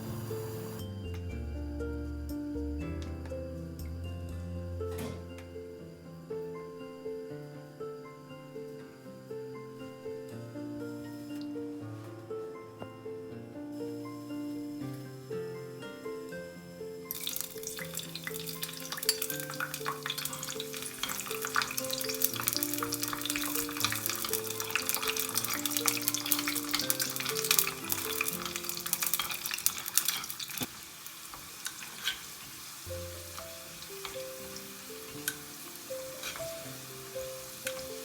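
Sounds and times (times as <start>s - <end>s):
oil sizzling in a pot: 0.0s - 1.0s, 13.7s - 38.0s.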